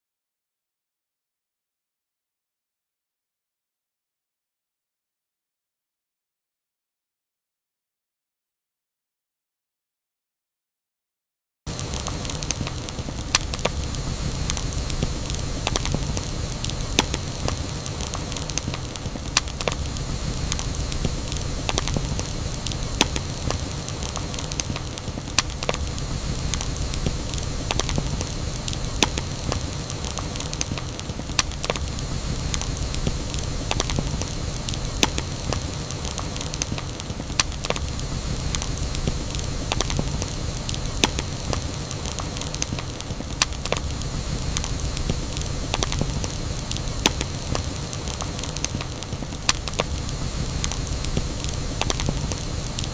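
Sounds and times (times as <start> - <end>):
campfire rumble: 11.7 - 52.9
fire crackling and popping: 11.7 - 52.9.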